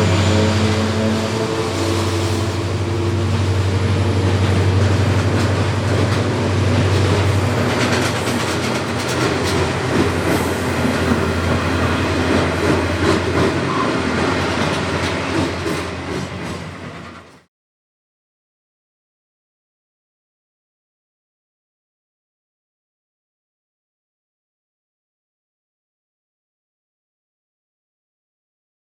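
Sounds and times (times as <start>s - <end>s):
diesel engine drone: 0.0s - 17.4s
train wheels clicking over rails: 0.0s - 17.5s.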